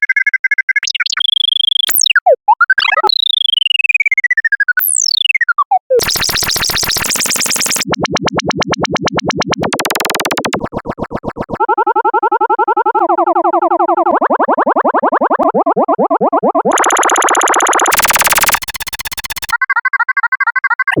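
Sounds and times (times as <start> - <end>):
buzzing pulsing electronic tones: 6.0 - 8.6, 9.5 - 11.6, 16.7 - 19.6
falling electronic pitch glides: 6.0 - 11.6, 13.5 - 19.6
stepped electronic tones: 6.0 - 11.6, 15.4 - 19.6.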